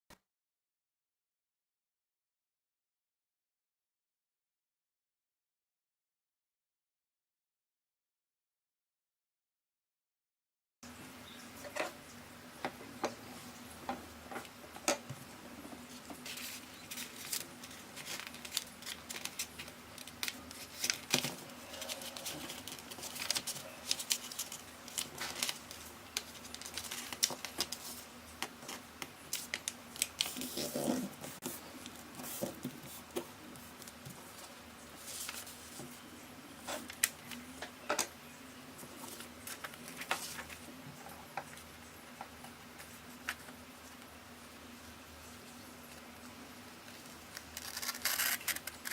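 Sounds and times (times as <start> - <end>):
faint steady hum: 10.8 - 48.9
paper rustling and crackling: 15.7 - 37.5, 38.8 - 40.7, 46.8 - 48.9.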